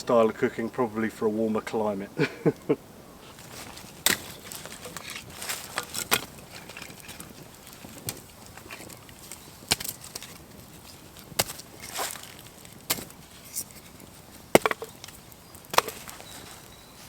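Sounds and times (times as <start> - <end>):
firewood cracking and knocking: 3.3 - 16.8.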